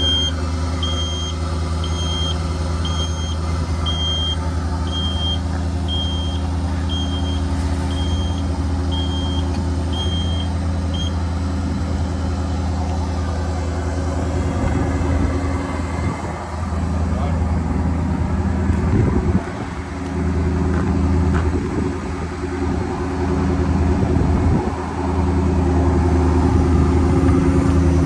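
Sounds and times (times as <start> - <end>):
high electronic warning beep: 0.0 - 11.2
diesel engine idling: 0.0 - 28.0.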